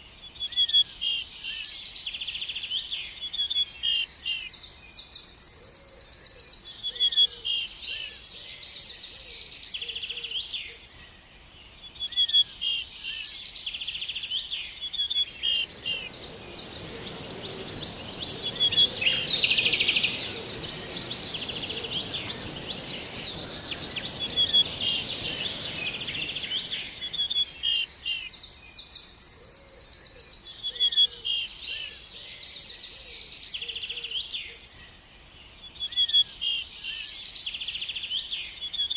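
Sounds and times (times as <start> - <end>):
steady high hiss: 15.2 - 27.9
songbirds chirping and trilling: 15.2 - 28.1.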